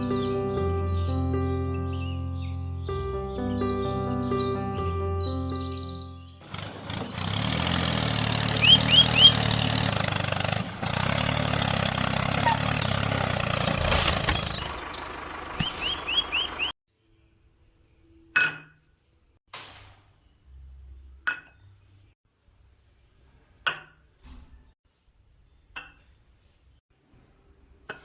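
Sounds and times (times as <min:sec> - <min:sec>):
birds chirping: 0:00.0 - 0:18.3
tractor engine idling: 0:06.4 - 0:16.7.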